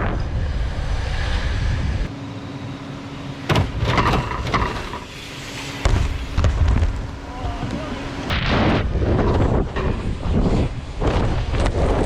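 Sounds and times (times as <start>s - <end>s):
wind buffeting microphone: 0.0s - 2.1s, 6.0s - 12.0s
bikes hitting a ramp: 3.5s - 12.0s.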